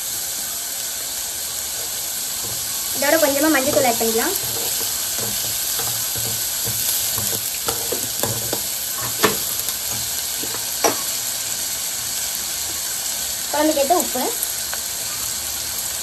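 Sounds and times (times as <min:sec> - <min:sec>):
onions sizzling in hot oil: 0:00.0 - 0:16.0
spoon scraping and knocking pot: 0:01.8 - 0:11.1.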